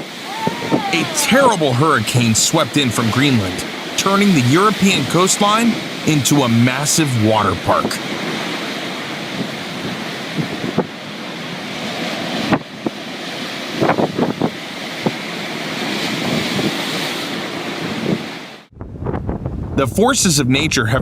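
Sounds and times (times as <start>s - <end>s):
crashing sea surf: 0.0s - 18.7s
wind buffeting microphone: 9.2s - 11.2s, 13.7s - 15.2s, 17.8s - 19.8s.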